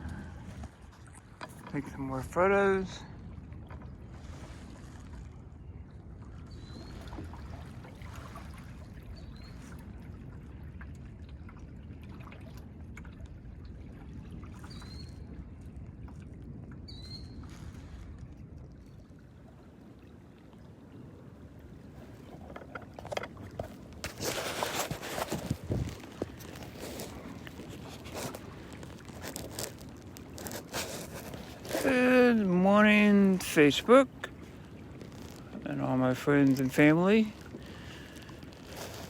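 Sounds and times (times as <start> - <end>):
river water moving: 0.0 - 39.0
wind rumble: 9.7 - 32.4
rustling: 23.6 - 32.0, 37.3 - 39.0.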